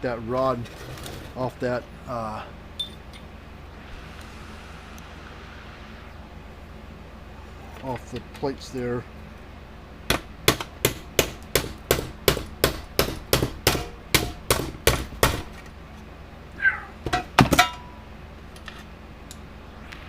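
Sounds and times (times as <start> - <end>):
hammer striking a metal punch: 10.1 - 15.5.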